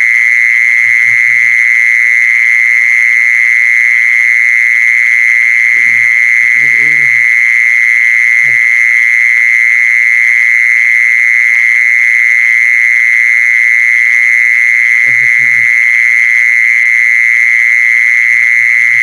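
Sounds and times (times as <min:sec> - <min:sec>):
short low animal calls: 0:00.8 - 0:01.6, 0:05.7 - 0:07.5, 0:15.0 - 0:15.8
high-pitched animal trill: 0:05.7 - 0:07.3.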